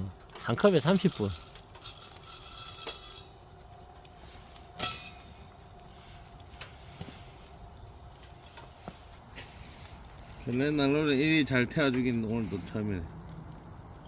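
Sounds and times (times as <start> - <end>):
quiet fire in a stove: 0.0 - 14.0
faint clicks: 12.8 - 14.0.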